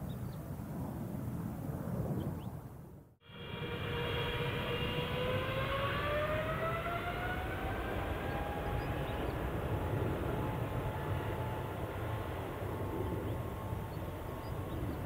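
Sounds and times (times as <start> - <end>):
low engine rumble: 3.0 - 15.0
jet engines spooling up: 3.2 - 15.0.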